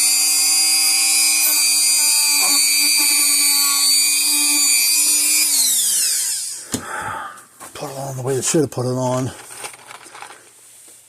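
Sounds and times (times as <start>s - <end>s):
rotary tool high-pitched whine: 0.0s - 6.7s.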